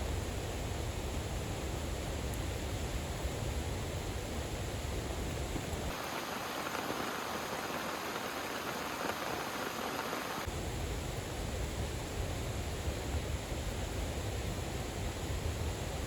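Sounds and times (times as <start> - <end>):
heavy rain falling: 5.9 - 10.5.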